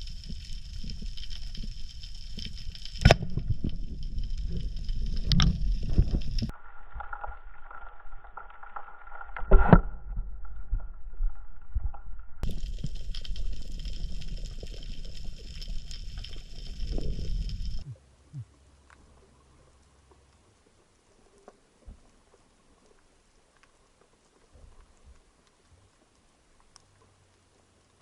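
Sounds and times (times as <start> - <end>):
low rumble: 0.0 - 18.6
muffled underwater gurgling: 12.4 - 18.5.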